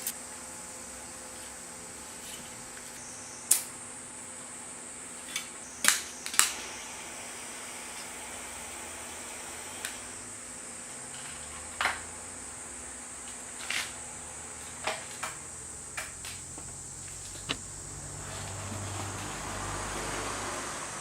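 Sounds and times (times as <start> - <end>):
steady high hiss: 0.0 - 21.0
sharp clicks and knocks: 14.9 - 17.8.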